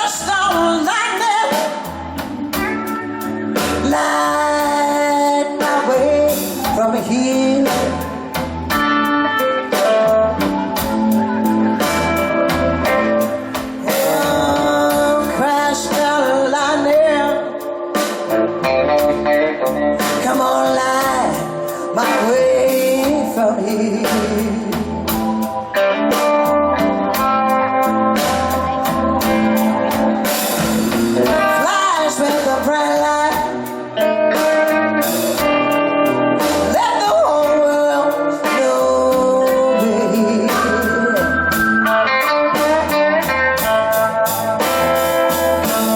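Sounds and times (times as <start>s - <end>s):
woman singing: 0.0s - 2.1s, 2.8s - 8.5s, 9.3s - 12.6s, 13.6s - 18.2s, 20.0s - 26.2s, 31.2s - 43.0s
blues band playing: 0.0s - 45.9s.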